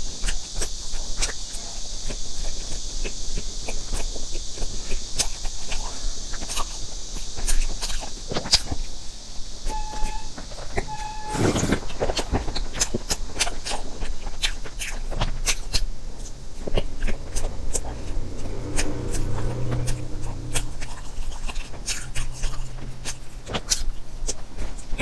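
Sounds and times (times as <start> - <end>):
wet chewing mouth sounds: 0.2 - 8.8, 11.6 - 25.0
short beeps: 9.7 - 11.6.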